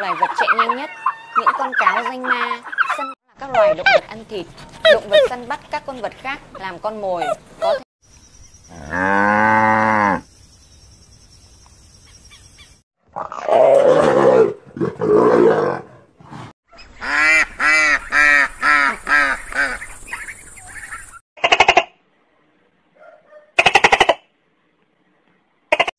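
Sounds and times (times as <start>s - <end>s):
ducks quacking: 0.0s - 3.2s, 16.8s - 21.8s
cow mooing: 8.7s - 10.2s
rough growl: 13.1s - 16.6s.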